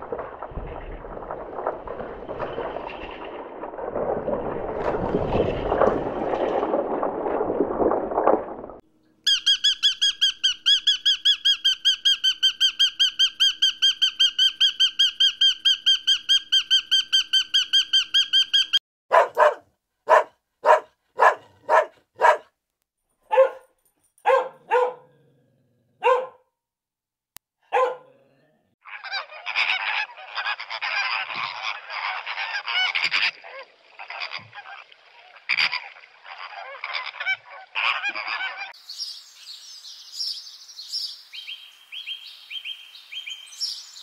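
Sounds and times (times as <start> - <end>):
rushing rumbling noise: 0.0 - 8.8
bird's rapid high-pitched call: 9.3 - 18.8
dog barking: 19.1 - 22.5, 23.3 - 25.2, 26.0 - 26.5, 27.6 - 28.4.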